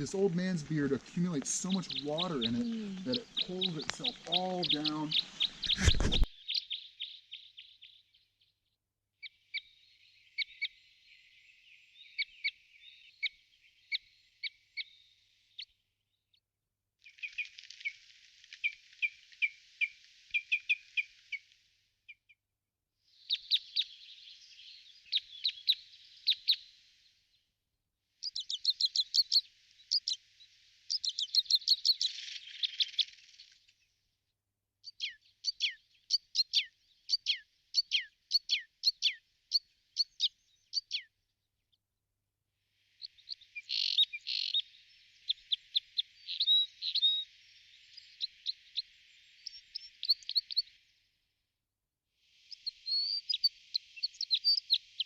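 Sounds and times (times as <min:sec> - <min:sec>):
birds chirping: 0:00.0 - 0:15.7, 0:23.3 - 0:27.0, 0:28.2 - 0:33.6, 0:43.0 - 0:50.8, 0:52.5 - 0:55.0.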